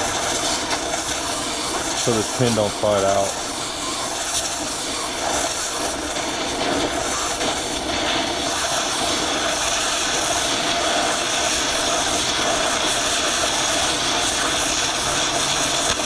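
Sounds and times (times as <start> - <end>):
angle grinder cutting steel: 8.5 - 16.0.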